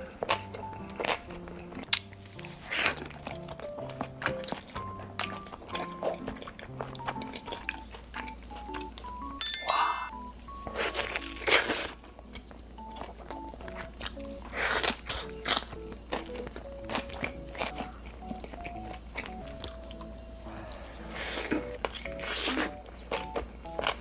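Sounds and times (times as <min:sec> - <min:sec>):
crunchy bites and chewing: 0:00.0 - 0:08.9, 0:10.7 - 0:24.0
light background music: 0:00.0 - 0:24.0.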